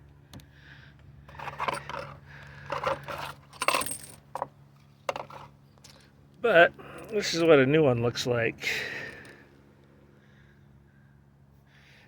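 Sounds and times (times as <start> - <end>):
metal car parts clinking: 1.3 - 6.1.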